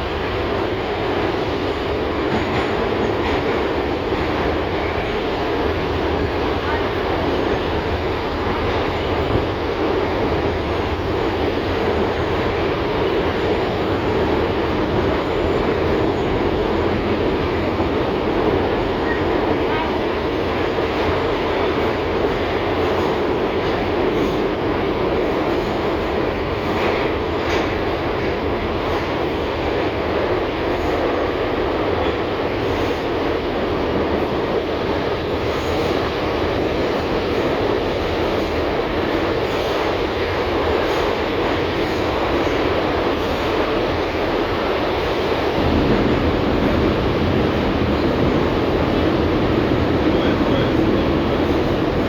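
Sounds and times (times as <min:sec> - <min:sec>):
tram wheels rumbling on rails: 0:00.0 - 0:52.0.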